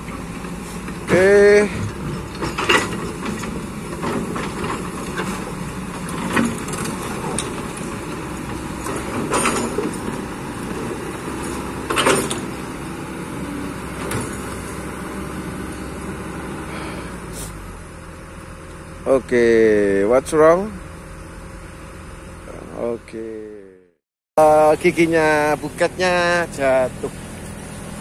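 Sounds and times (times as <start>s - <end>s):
excavator engine running: 0.0s - 28.0s
excavator bucket clanking on rocks: 0.1s - 12.7s.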